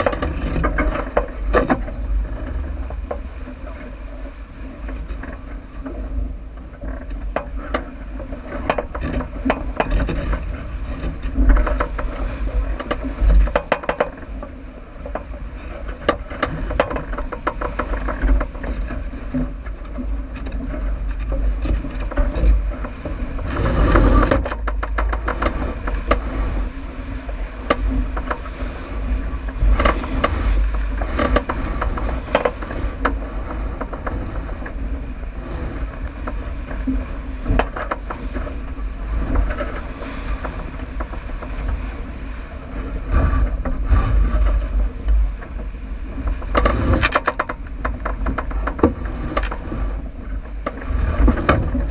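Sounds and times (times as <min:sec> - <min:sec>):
water rushing past hull: 0:00.0 - 0:51.9
wind buffeting microphone: 0:00.0 - 0:51.9
knocks and clicks: 0:12.8 - 0:14.2.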